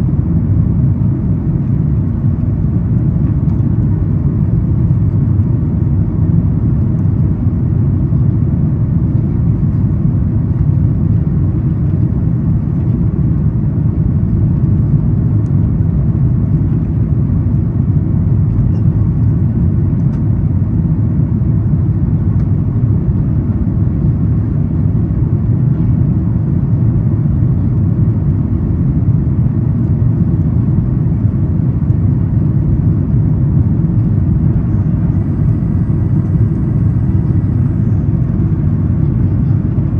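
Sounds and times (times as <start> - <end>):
jet engines at climb thrust: 0.0 - 39.9
airflow over fuselage: 27.7 - 39.9.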